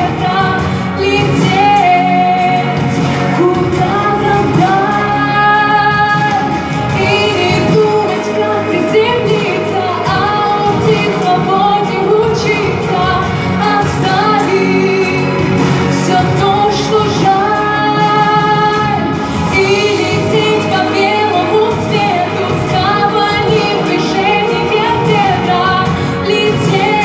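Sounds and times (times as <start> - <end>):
instrumental accompaniment: 0.0 - 27.0
person singing: 0.0 - 27.0.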